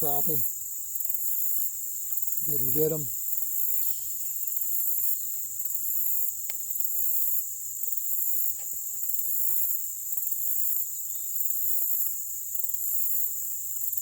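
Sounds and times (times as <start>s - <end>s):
insect chorus buzzing: 0.0s - 14.0s
shrill pulsing insect call: 0.0s - 14.0s.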